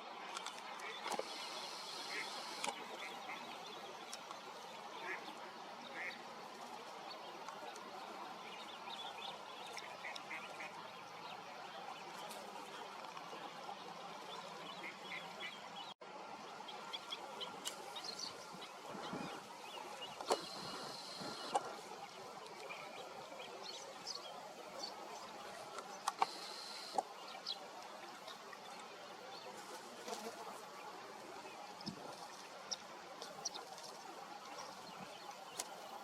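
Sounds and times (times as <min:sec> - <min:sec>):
steady outdoor hiss: 0:00.0 - 0:36.0
waterbirds calling: 0:00.0 - 0:36.0.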